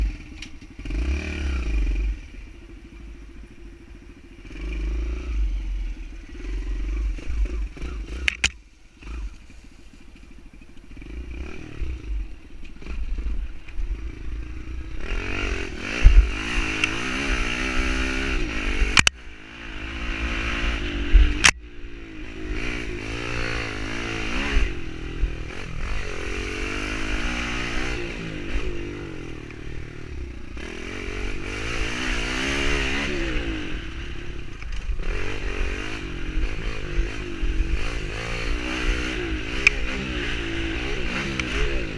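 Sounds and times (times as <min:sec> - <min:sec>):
pit bike engine revving: 0:00.0 - 0:41.9.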